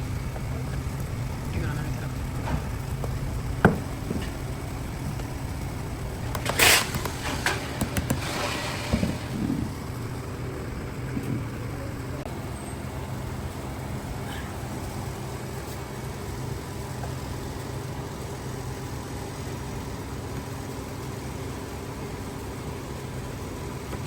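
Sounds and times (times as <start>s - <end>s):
low machinery hum: 0.0s - 24.0s
knocks and clicks: 2.4s - 10.4s
burst of hiss: 6.3s - 10.3s.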